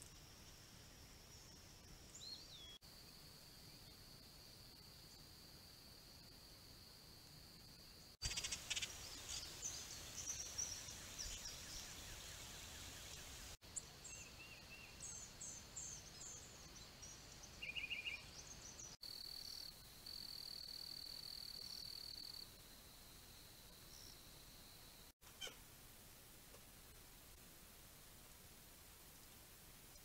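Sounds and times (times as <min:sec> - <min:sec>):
wild birds chirping and singing: 0:01.0 - 0:02.8, 0:08.0 - 0:22.5, 0:23.8 - 0:25.6.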